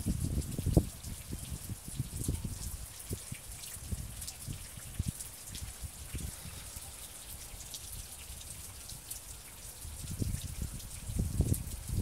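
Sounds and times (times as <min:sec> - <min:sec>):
rain hiss: 0:00.0 - 0:12.0.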